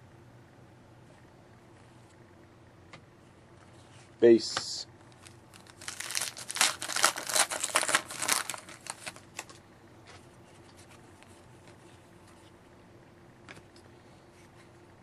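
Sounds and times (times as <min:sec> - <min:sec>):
plastic packaging crinkling: 0:05.1 - 0:09.6.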